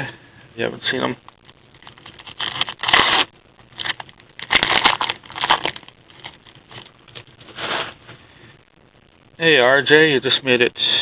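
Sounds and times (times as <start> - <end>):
plastic packaging rustling: 1.5 - 8.1.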